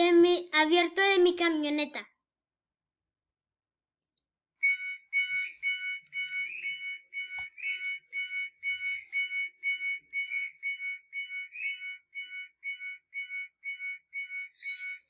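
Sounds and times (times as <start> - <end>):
electronic warning beeps: 4.6 - 15.0.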